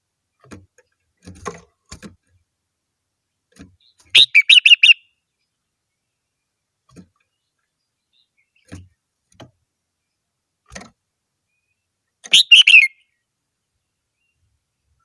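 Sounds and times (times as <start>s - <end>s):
bird singing chirped notes: 3.8s - 6.5s, 11.5s - 13.3s.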